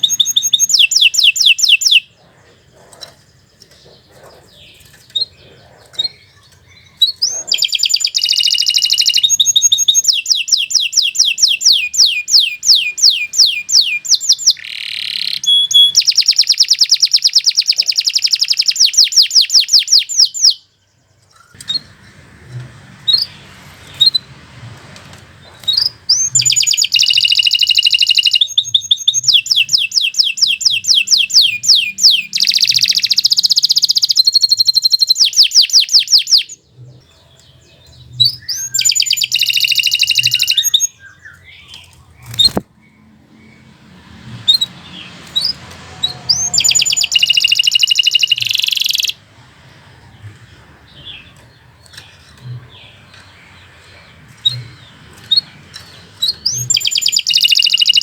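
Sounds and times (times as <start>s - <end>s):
canary single chirps: 0.0s - 2.1s, 3.8s - 20.7s, 25.5s - 36.6s, 38.2s - 42.6s, 44.5s - 49.2s, 55.2s - 58.0s
canary singing trills: 0.0s - 58.0s.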